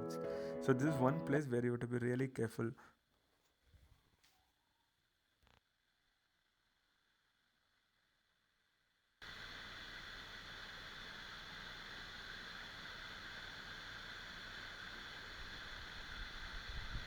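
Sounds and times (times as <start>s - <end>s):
steady outdoor hiss: 0.0s - 1.7s, 9.2s - 17.0s.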